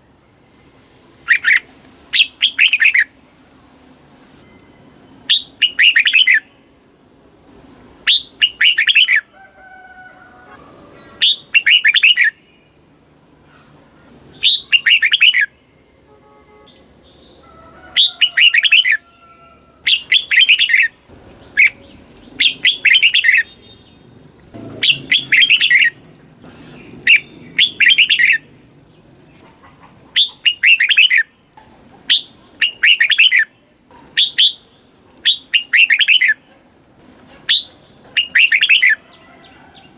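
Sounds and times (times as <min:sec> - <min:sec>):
bird chattering song: 0:01.2 - 0:03.2, 0:04.5 - 0:06.6, 0:08.0 - 0:09.4, 0:11.0 - 0:12.8, 0:13.4 - 0:15.8, 0:18.0 - 0:19.0, 0:19.8 - 0:36.7, 0:37.4 - 0:39.2.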